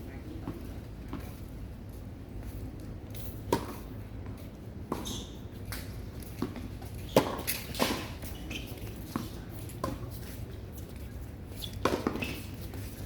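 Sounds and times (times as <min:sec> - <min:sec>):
tennis ball bouncing on court: 0:05.7 - 0:08.3, 0:11.8 - 0:12.5
racket hitting tennis ball: 0:06.4 - 0:08.3, 0:11.8 - 0:12.5.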